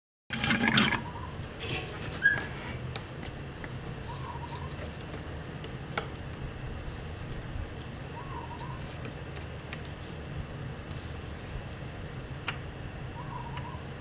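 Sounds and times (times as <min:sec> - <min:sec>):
low steady hum: 0:00.3 - 0:14.0
faint bird calls: 0:04.0 - 0:04.8, 0:08.1 - 0:08.9, 0:13.1 - 0:14.0.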